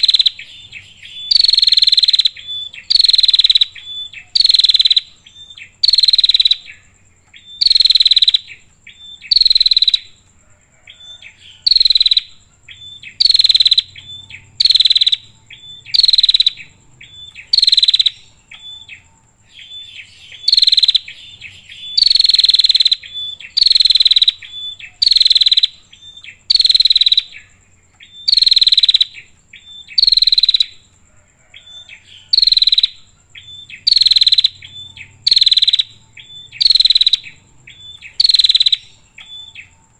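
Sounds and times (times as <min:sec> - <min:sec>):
faint steady high tone: 0:00.0 - 0:39.9.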